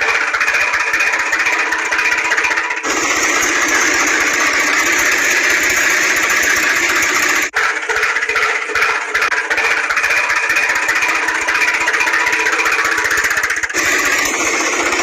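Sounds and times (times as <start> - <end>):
engine running with a rattle: 0.0 - 15.0.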